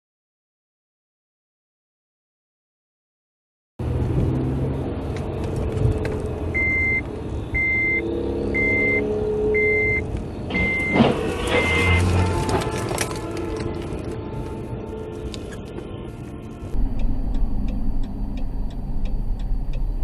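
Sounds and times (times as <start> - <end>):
vehicle engine rumble: 3.8 - 20.0
reversing alarm beeps: 6.6 - 12.0.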